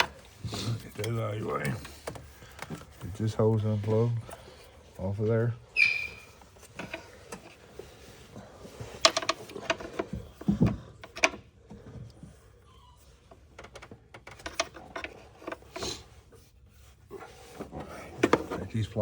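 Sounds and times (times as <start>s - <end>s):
tools and plastic parts clicking: 8.7s - 11.4s, 13.4s - 15.9s.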